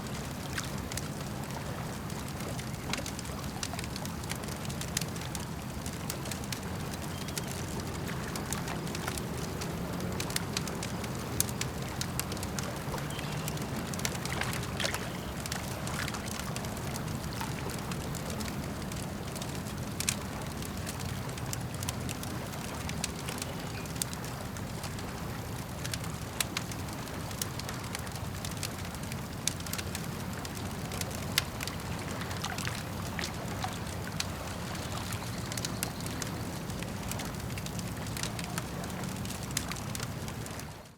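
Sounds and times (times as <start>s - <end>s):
campfire crackling and popping: 0.0s - 40.9s
lake water sloshing: 7.2s - 20.4s, 30.3s - 37.3s.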